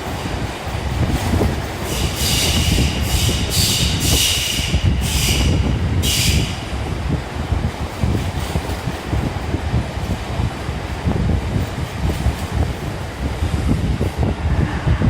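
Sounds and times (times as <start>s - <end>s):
train wheels rumbling: 0.0s - 15.0s
high wheel squeal: 1.8s - 6.6s.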